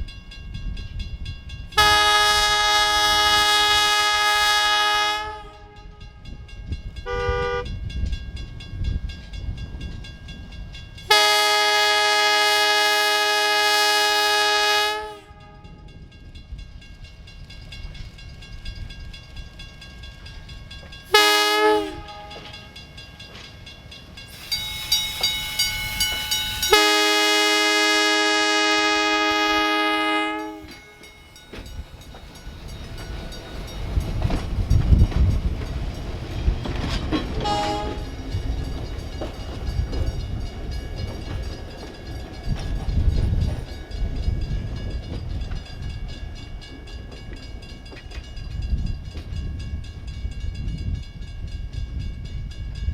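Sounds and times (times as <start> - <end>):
train rumbling: 0.0 - 52.9
train horn blasts: 1.8 - 6.4, 7.0 - 7.8, 11.0 - 16.0, 21.1 - 22.7, 26.5 - 30.8, 37.4 - 38.2
bell ringing: 22.0 - 27.4.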